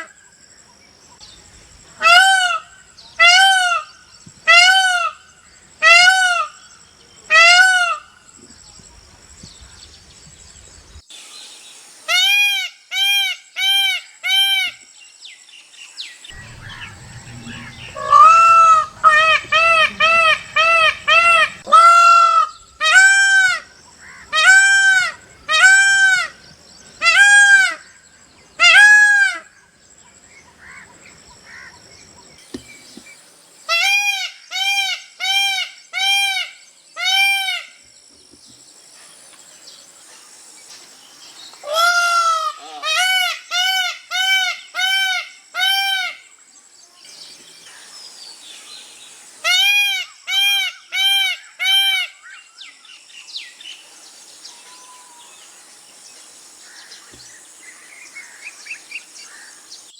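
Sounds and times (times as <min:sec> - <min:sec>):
peacock calling loudly: 0:01.9 - 0:06.6, 0:07.3 - 0:08.2, 0:16.3 - 0:29.8, 0:33.7 - 0:37.7, 0:41.6 - 0:46.2, 0:49.4 - 0:52.4.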